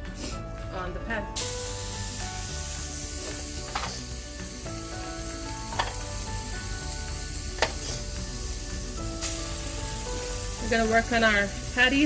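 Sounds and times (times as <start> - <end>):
burger patties sizzling in a pan: 1.4 - 12.0
sharp pops: 3.6 - 4.1, 7.6 - 8.0.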